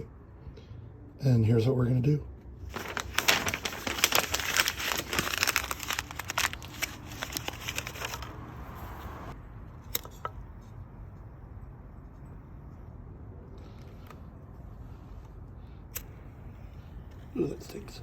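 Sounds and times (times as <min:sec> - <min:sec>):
paper crumpling: 0:02.6 - 0:08.4.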